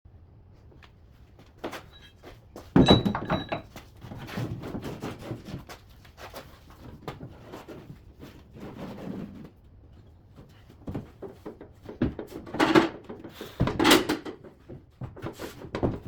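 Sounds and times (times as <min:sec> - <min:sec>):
knocks and metallic clunk: 0:01.7 - 0:04.9, 0:10.8 - 0:16.0.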